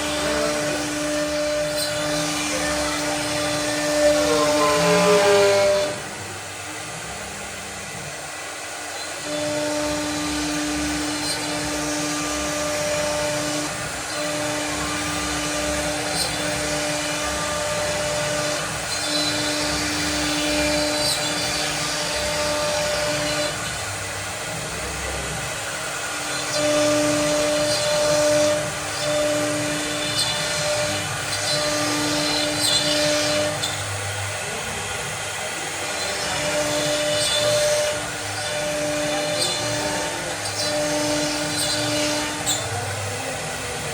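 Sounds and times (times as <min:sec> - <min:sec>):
cnc machine motor running: 0:00.0 - 0:43.9.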